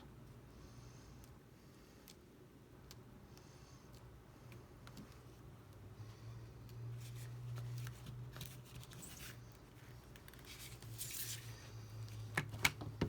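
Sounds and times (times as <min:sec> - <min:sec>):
steady low hum: 0:00.0 - 0:13.0
rustling scrape: 0:07.0 - 0:11.8.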